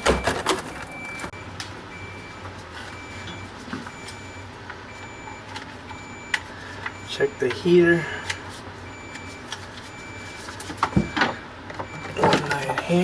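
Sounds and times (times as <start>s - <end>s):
refrigerator control panel beeping: 0.0s - 13.0s.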